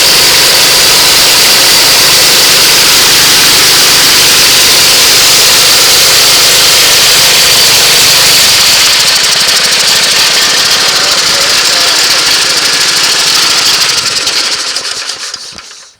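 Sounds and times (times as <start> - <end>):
air compressor engine running: 0.0 - 15.9
rapid fine rhythm: 5.1 - 15.9.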